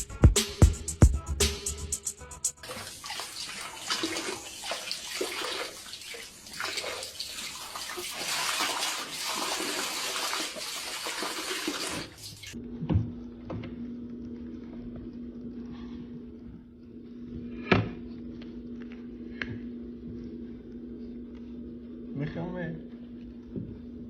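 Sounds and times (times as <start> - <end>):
music track: 0.0 - 2.8
water splashing in a bathtub: 2.6 - 12.6.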